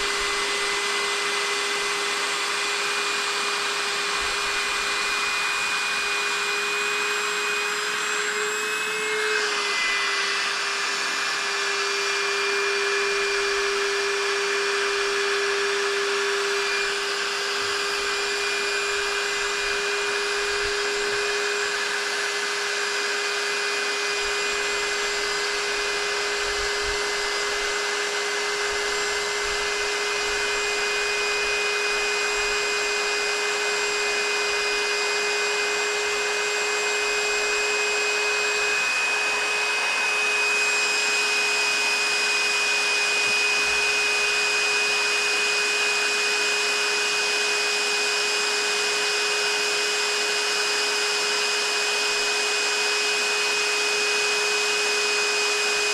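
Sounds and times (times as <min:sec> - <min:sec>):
small motor whirring: 0:00.0 - 0:55.9.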